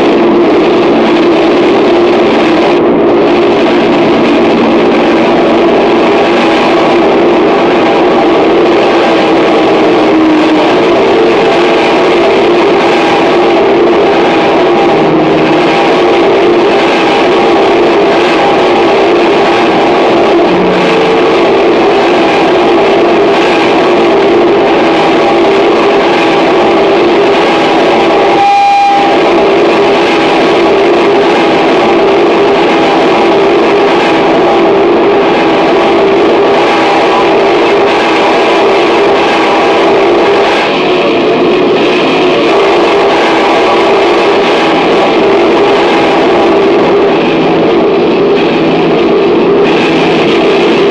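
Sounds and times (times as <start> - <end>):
distorted noise wall: 0.0 - 50.9
droning tones: 0.0 - 50.9
short clear tone: 28.4 - 29.2.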